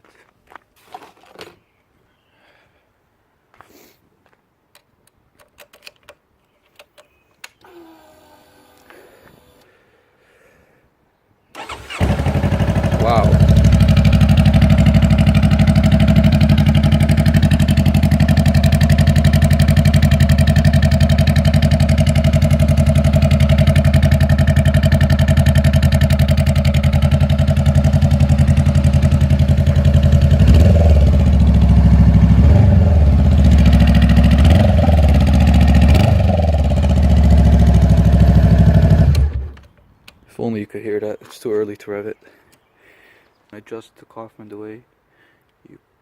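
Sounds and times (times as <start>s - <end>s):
motorcycle engine idling: 11.6s - 39.6s.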